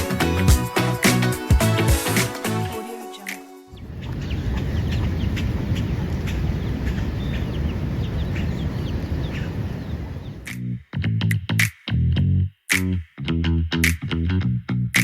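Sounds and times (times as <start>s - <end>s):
birds chirping: 3.7s - 10.5s.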